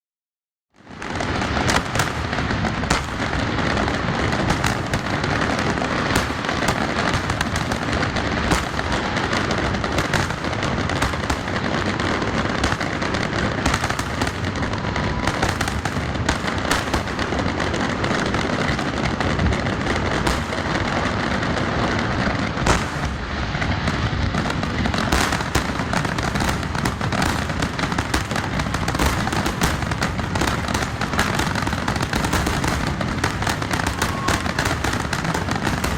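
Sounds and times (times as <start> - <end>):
fireworks bangs and crackles: 0.8 - 35.9.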